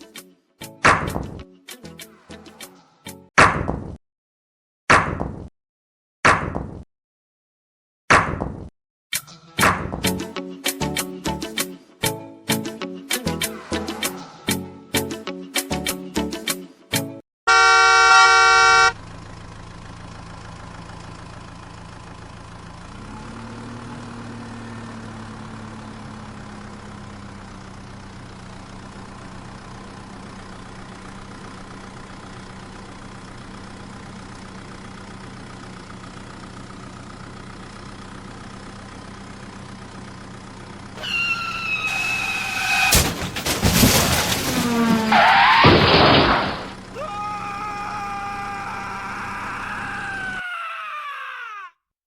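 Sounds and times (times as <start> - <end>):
horn honk: 17.5 - 19.0, 41.0 - 43.1.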